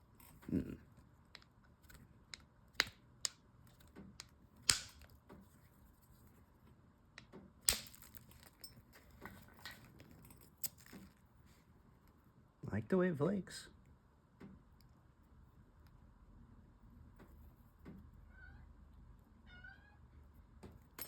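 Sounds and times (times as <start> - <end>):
sharp cracks of stone strikes: 4.7 - 5.0, 7.6 - 8.3.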